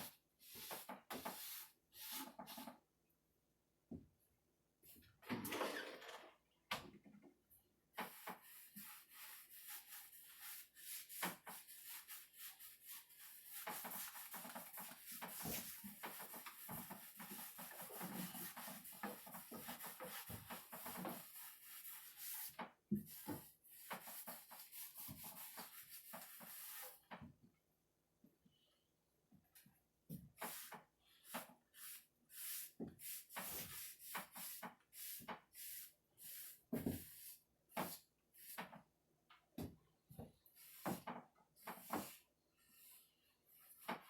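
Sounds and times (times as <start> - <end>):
cloth rubbing on wood: 8.1 - 22.5.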